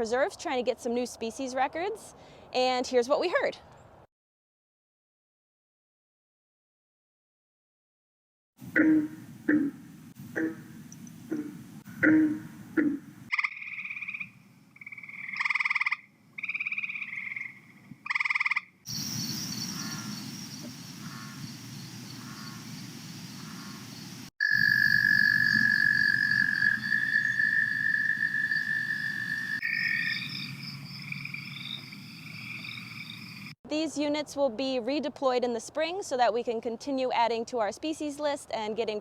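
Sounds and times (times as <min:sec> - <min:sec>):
frogs calling: 0:08.8 - 0:09.8, 0:10.4 - 0:33.6
high frog trill: 0:24.4 - 0:33.5.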